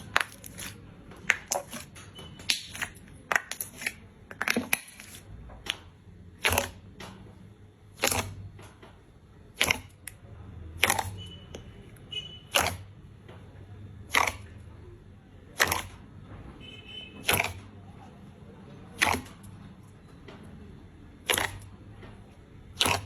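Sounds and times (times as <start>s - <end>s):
slime squeezed by hand popping: 14.1s - 14.4s, 17.2s - 17.6s, 19.0s - 19.3s, 21.2s - 21.6s.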